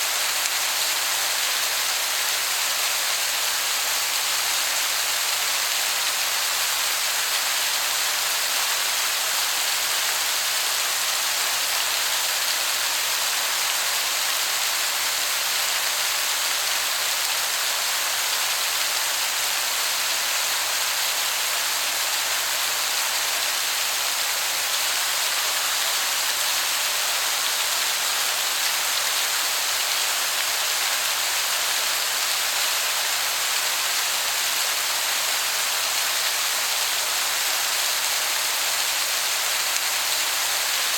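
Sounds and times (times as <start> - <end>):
distant waterfall hiss: 0.0 - 40.9.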